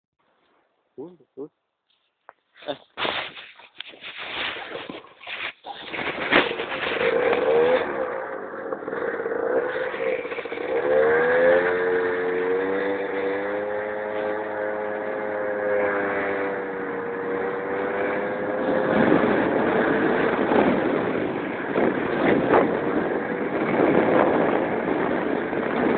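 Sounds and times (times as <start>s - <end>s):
knocks and rustles: 1.9s - 7.9s
scooter engine pulling away: 4.4s - 25.9s.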